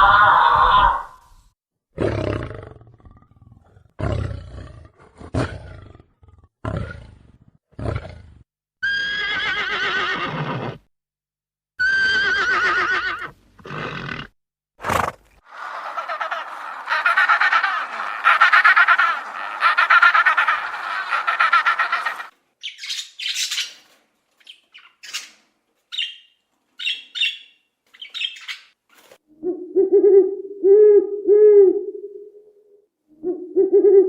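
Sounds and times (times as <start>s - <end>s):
wavering high-pitched animal calls: 15.5s - 23.6s.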